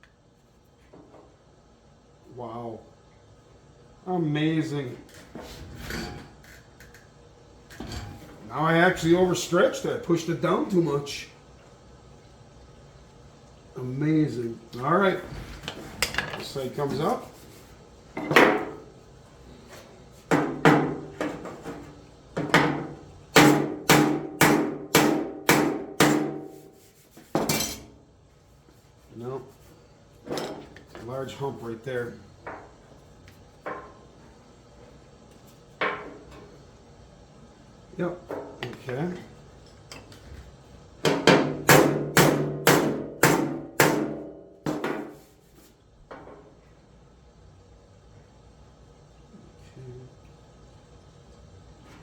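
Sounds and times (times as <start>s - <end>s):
hammer striking metal panel: 22.5s - 26.5s, 41.1s - 45.1s.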